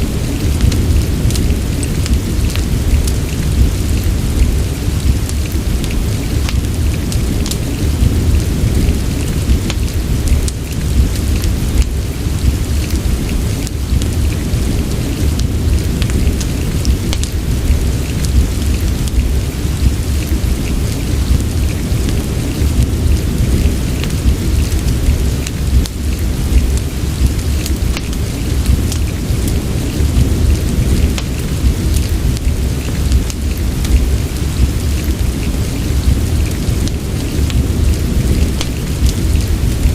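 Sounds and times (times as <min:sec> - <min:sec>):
fireplace crackling: 0:00.0 - 0:39.9
low rumble: 0:00.0 - 0:39.9
steady rain: 0:00.0 - 0:39.9.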